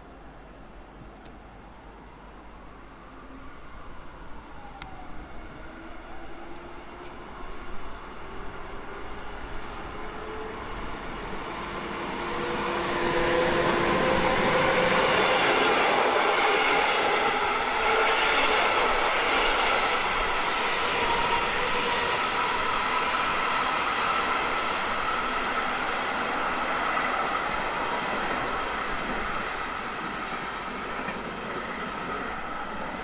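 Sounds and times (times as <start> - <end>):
train wheels on rails: 8.2 - 33.0.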